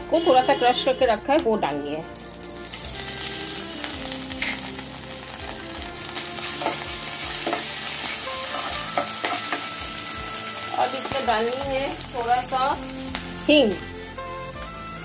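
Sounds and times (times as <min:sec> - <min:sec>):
spices sizzling in hot oil: 0:01.8 - 0:15.0
spatula scraping a pan: 0:06.4 - 0:09.7.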